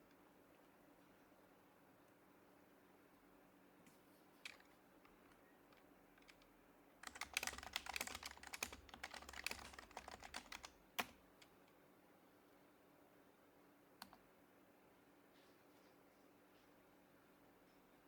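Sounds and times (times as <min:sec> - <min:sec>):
keyboard typing: 0:04.4 - 0:11.5.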